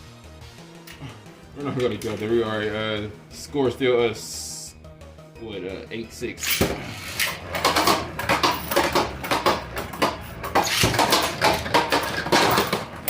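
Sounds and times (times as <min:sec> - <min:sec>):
spinning tops clattering: 0:06.4 - 0:13.0.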